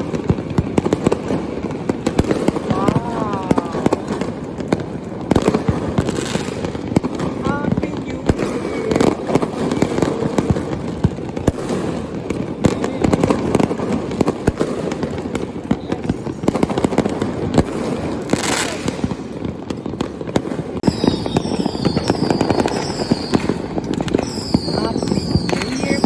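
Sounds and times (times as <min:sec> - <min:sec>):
fireworks bangs and crackle: 0:00.0 - 0:26.0.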